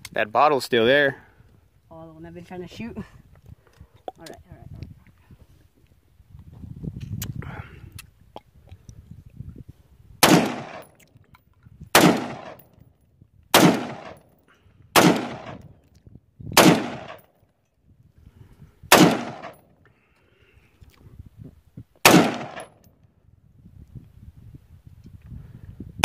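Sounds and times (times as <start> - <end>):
rifle single shots with echo: 10.2 - 11.0, 11.9 - 12.8, 13.5 - 14.3, 14.9 - 15.8, 16.5 - 17.4, 18.9 - 19.7, 22.0 - 22.9.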